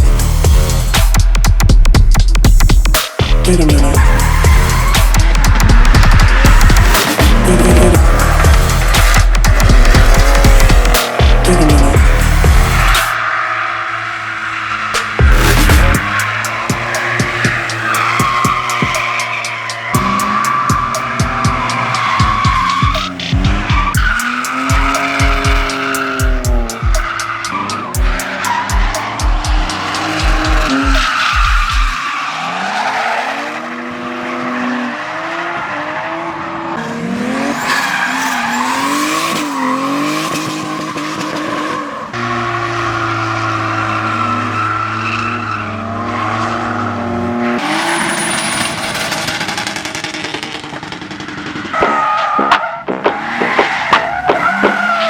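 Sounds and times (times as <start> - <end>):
thumping music beat: 0.0 - 13.2, 14.9 - 32.0, 50.4 - 55.0
engines revving: 0.0 - 55.0
tyres squealing: 3.5 - 33.6, 47.6 - 55.0.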